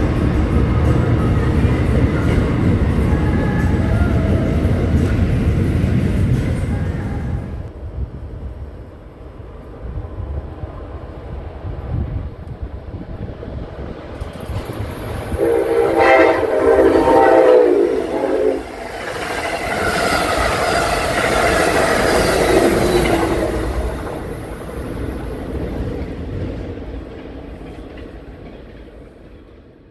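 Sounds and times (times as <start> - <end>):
train wheels clattering on rails: 0.0 - 7.7, 13.2 - 29.9
train horn blast: 15.3 - 19.0.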